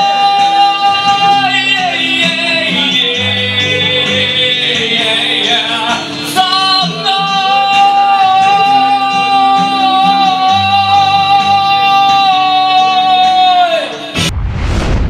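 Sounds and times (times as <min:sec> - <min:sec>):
guitar accompaniment: 0:00.0 - 0:14.3.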